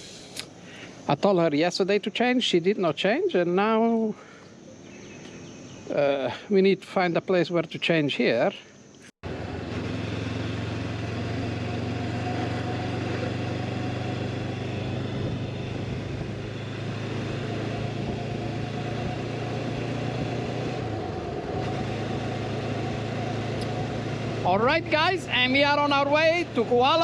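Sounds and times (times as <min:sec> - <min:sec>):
motorcycle engine running: 0:09.2 - 0:27.0.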